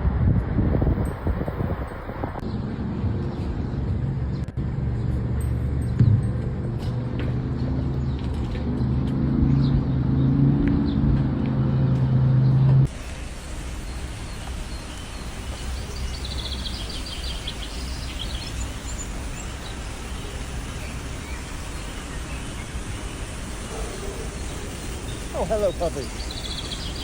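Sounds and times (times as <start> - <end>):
outdoor background noise: 0.0 - 27.0
bird chirping: 13.8 - 27.0.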